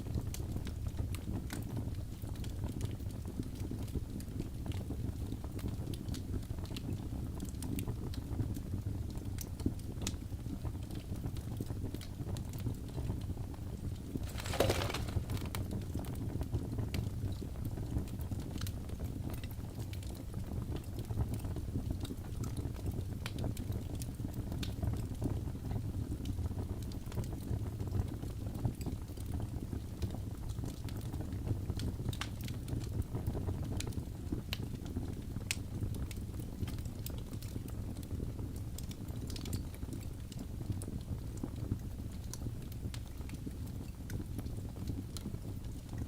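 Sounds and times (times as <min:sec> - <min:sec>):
fire crackling and popping: 0:00.0 - 0:46.0
logs burning in fireplace: 0:00.0 - 0:46.0
hissing flare of crackles: 0:14.2 - 0:16.0.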